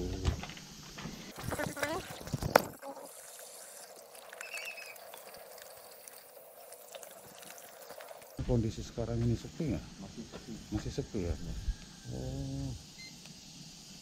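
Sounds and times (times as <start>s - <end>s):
tap water pouring over hands: 1.4s - 8.4s.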